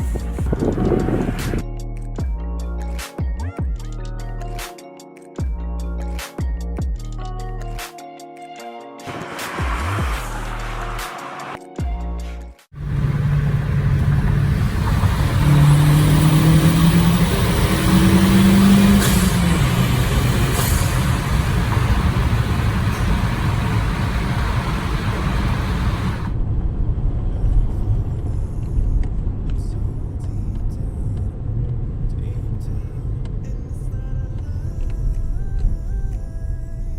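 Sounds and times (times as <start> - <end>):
car engine accelerating: 0.0 - 1.6, 9.1 - 11.6, 12.8 - 26.4
road and wind noise: 0.0 - 1.7, 9.0 - 11.6, 12.8 - 36.9.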